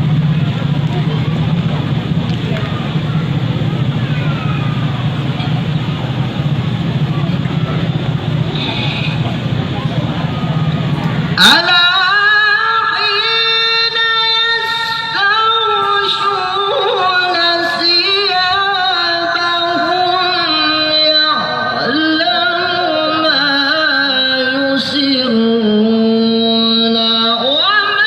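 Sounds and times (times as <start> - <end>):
person reciting melodically: 8.5 - 28.0.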